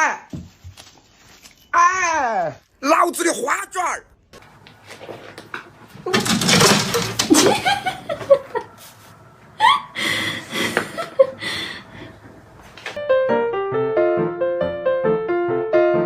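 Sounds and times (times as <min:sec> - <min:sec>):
laughter: 0:07.3 - 0:08.9, 0:10.6 - 0:11.4
light piano-like tune: 0:12.4 - 0:16.0.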